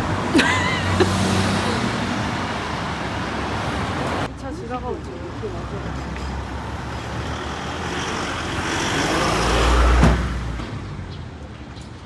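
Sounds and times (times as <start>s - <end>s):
vehicle passing by: 0.0s - 4.3s, 5.3s - 10.9s.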